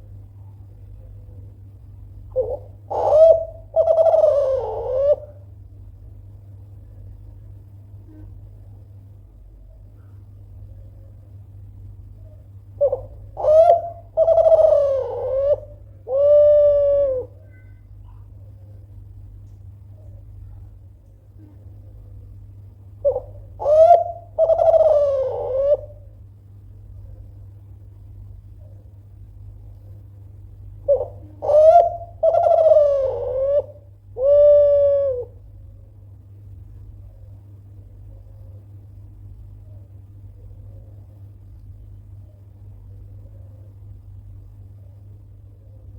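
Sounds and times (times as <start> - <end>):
steady low hum: 0.0 - 45.9
dove cooing: 2.3 - 5.5, 12.7 - 17.7, 23.0 - 26.2, 30.8 - 35.7.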